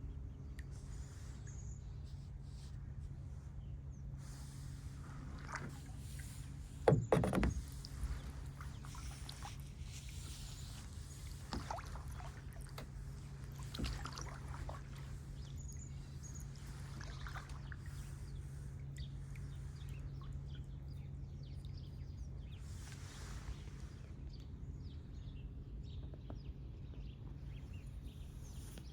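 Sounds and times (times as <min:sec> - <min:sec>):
steady low hum: 0:00.0 - 0:28.9
kayak paddle dipping into water: 0:04.6 - 0:20.5
water dripping off paddle: 0:06.9 - 0:15.5.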